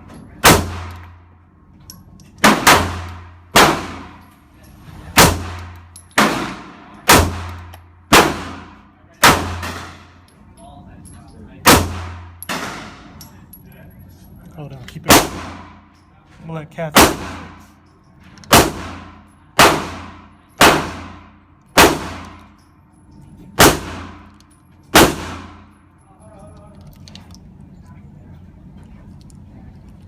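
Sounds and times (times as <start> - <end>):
pistol shots echoing: 0.4 - 1.1, 2.4 - 4.2, 5.2 - 10.1, 11.6 - 13.1, 15.1 - 15.8, 16.9 - 17.6, 18.5 - 22.5, 23.6 - 24.3, 25.0 - 25.7.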